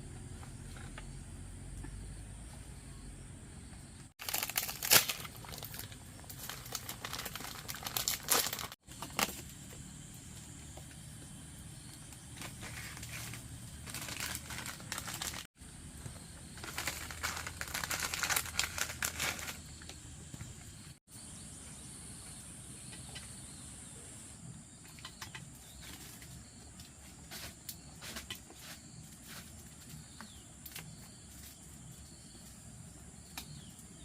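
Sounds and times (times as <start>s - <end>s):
rustling and crackling: 4.1s - 11.1s, 11.8s - 20.9s.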